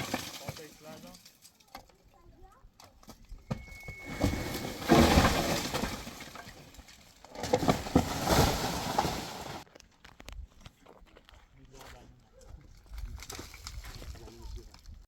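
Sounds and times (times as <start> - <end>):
loose hard material clattering: 3.5 - 9.6.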